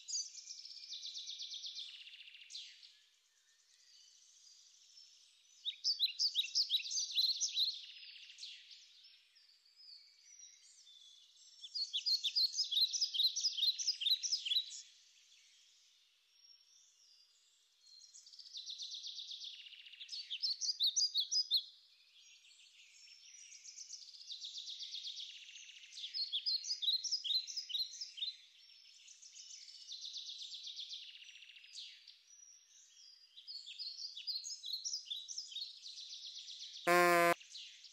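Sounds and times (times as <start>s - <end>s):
songbird trilling: 36.9s - 37.4s.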